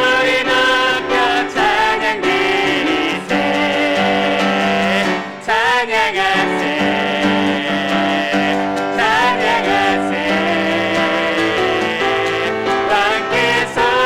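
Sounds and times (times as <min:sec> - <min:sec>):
group singing a hymn: 0:00.0 - 0:14.0
piano chords: 0:00.0 - 0:14.0.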